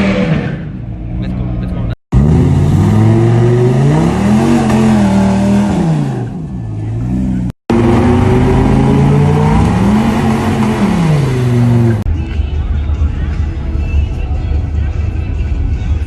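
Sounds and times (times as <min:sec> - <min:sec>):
truck engine revving: 0:00.0 - 0:12.1.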